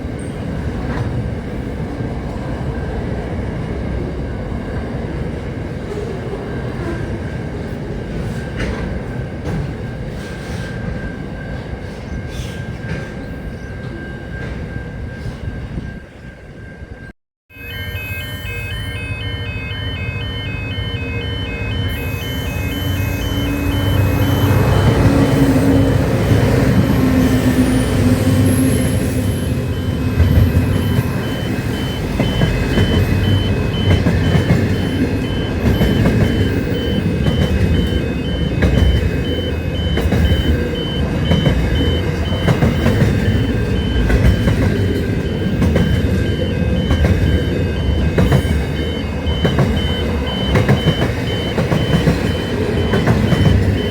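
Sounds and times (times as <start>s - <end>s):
train rumbling by: 0.0s - 53.9s
fast high-pitched beeping: 17.5s - 25.0s, 28.6s - 53.9s.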